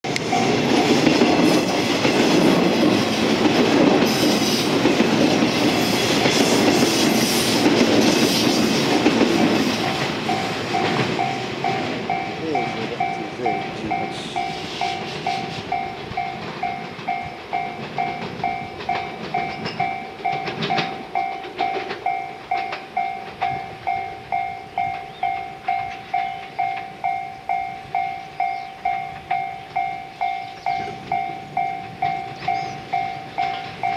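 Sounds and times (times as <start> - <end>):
train passing with wheel clatter: 0.0 - 33.9
level-crossing bell ringing: 0.1 - 1.9, 9.6 - 33.9.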